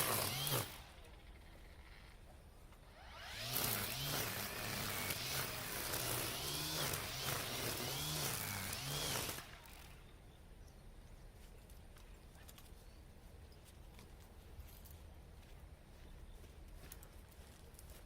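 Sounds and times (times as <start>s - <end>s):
string trimmer cutting weeds: 0.0s - 2.2s, 2.8s - 10.1s.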